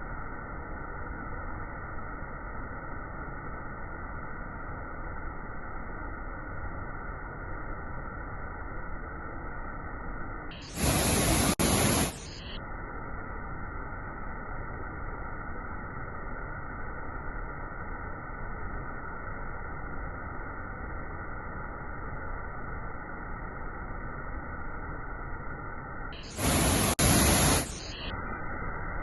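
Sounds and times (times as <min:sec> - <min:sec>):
waterfall rushing: 0:10.8 - 0:12.2, 0:26.3 - 0:27.8.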